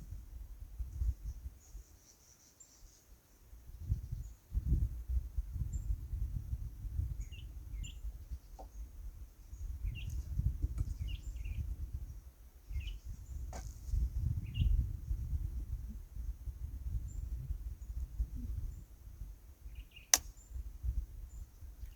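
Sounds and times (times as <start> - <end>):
wind on microphone: 0.0 - 1.9, 3.7 - 21.9
small bird chirping: 1.2 - 3.1, 7.2 - 13.7.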